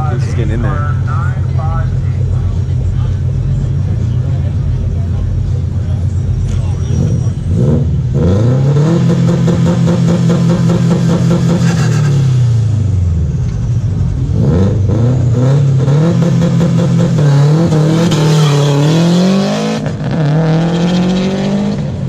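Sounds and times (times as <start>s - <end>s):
sports car engine revving: 0.0s - 22.0s.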